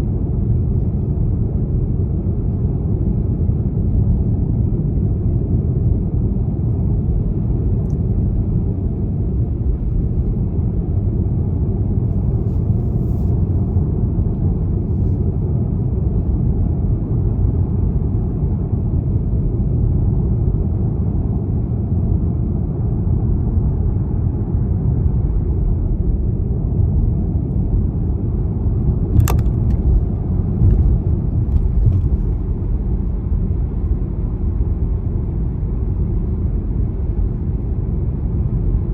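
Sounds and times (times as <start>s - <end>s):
car engine and road noise: 0.0s - 38.9s
sharp click: 29.2s - 30.0s.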